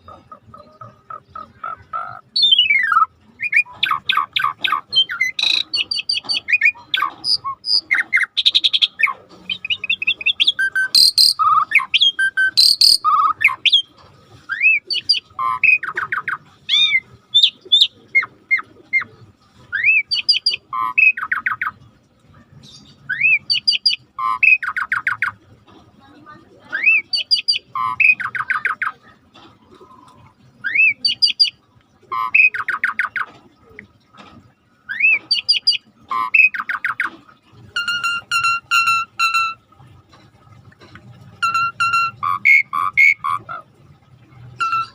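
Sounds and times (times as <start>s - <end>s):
starling singing: 0.0s - 21.9s, 22.6s - 25.4s, 26.6s - 29.0s, 29.8s - 33.3s, 34.9s - 39.7s, 41.3s - 43.8s, 44.5s - 44.9s.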